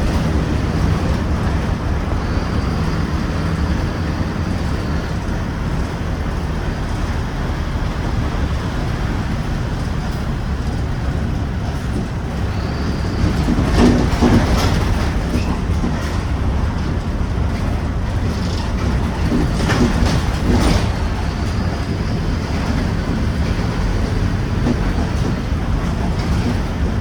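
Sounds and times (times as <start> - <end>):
bus diesel engine running: 0.0 - 27.0
road noise: 0.0 - 27.0.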